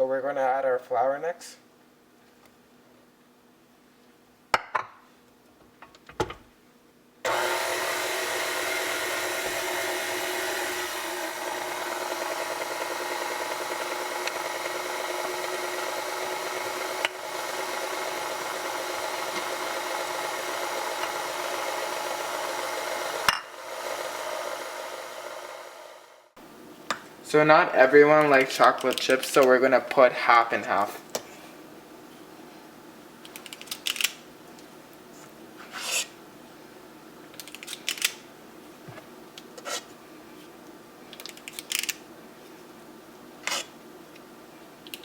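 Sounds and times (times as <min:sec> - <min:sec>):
electric mixer running: 0:07.3 - 0:26.4.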